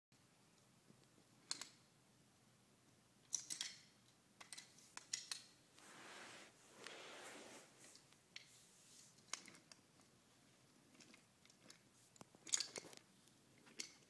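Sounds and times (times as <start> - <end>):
toy train pieces clicking: 3.3 - 5.5
soft rustling: 5.6 - 9.7.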